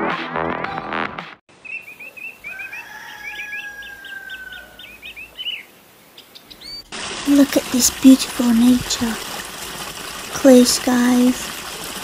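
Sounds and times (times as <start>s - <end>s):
birds chirping: 1.5s - 6.9s.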